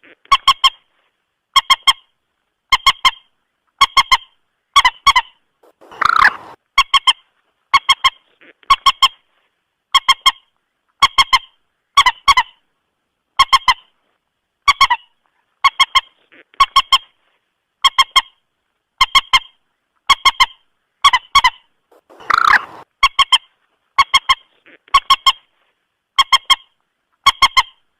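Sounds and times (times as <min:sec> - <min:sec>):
moorhen honking call: 0:05.6 - 0:06.6, 0:21.9 - 0:22.8
rough noisy bird call: 0:05.6 - 0:06.6, 0:21.9 - 0:22.8.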